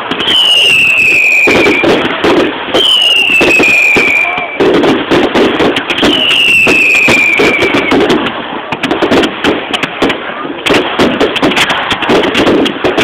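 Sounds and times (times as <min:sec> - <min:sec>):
firework descending whistle: 0:00.0 - 0:04.7, 0:05.9 - 0:08.1
fireworks crackling and banging: 0:00.0 - 0:13.0.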